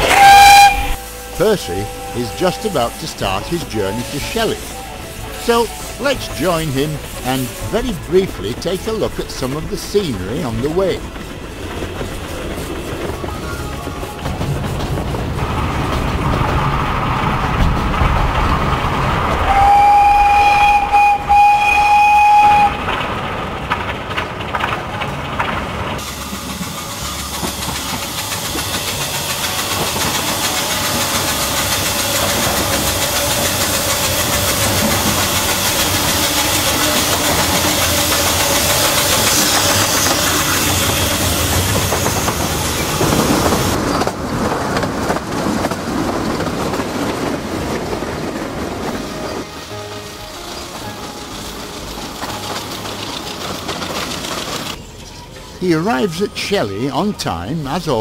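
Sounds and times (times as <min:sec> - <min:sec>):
steam locomotive whistle: 0:00.0 - 0:08.0, 0:19.4 - 0:22.9
train running along line: 0:00.0 - 0:58.0.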